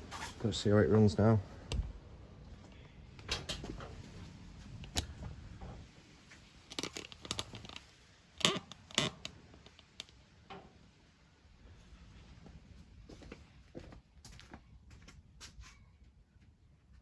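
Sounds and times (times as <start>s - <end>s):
handling clicks and knocks: 6.7s - 10.6s.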